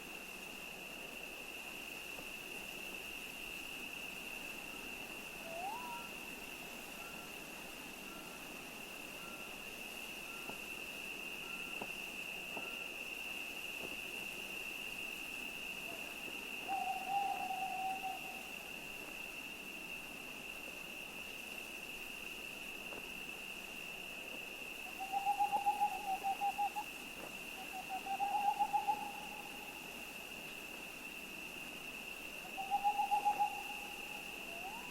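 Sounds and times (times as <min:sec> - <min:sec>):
owl hooting: 0:05.4 - 0:06.2, 0:16.6 - 0:18.5, 0:24.9 - 0:26.9, 0:27.6 - 0:29.7, 0:32.5 - 0:34.9.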